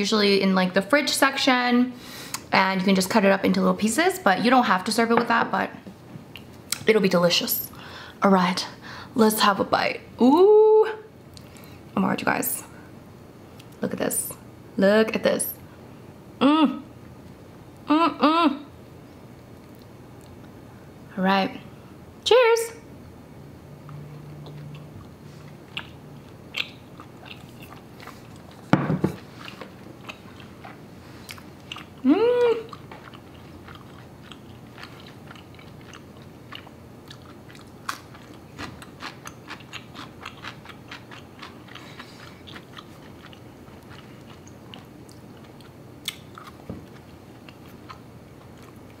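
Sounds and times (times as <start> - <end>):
person humming mmm: 16.4 - 16.9, 17.8 - 18.7, 32.0 - 32.8
person chewing rice cakes: 23.8 - 49.0
thump: 28.7 - 29.2.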